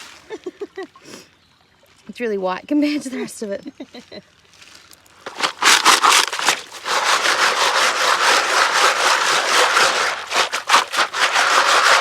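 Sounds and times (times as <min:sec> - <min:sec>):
gravel grinding against wire mesh: 0:04.8 - 0:12.0.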